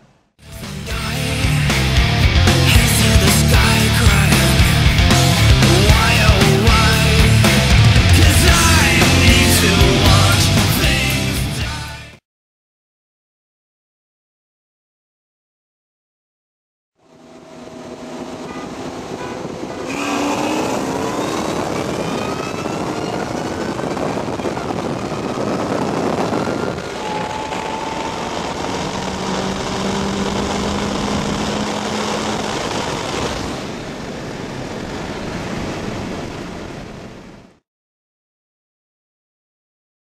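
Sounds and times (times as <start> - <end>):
car engine revving: 0.6 - 11.6, 17.0 - 22.2, 25.9 - 33.8.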